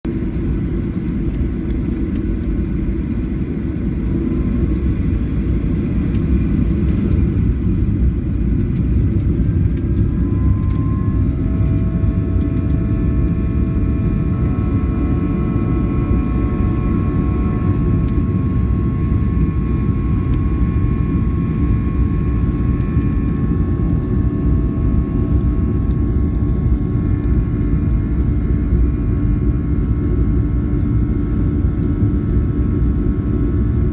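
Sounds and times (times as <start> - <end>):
jet engines deep rumble: 0.0 - 33.9
engine whine tones rising: 8.4 - 14.1.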